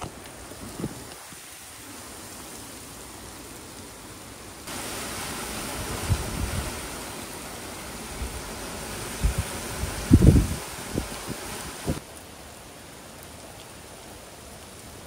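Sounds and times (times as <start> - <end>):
wind and driving rain: 0.0 - 15.0
wind gusts thudding microphone: 4.7 - 12.0.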